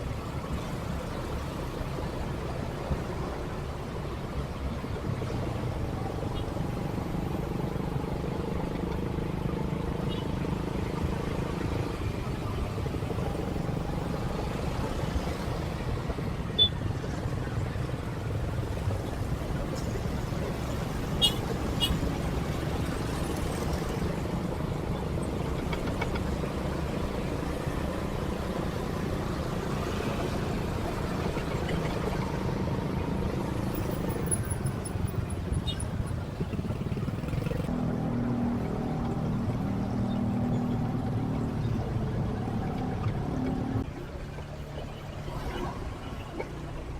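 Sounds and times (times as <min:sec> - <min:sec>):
city traffic noise: 0:00.0 - 0:46.9
motorcycle engine running: 0:36.0 - 0:37.7.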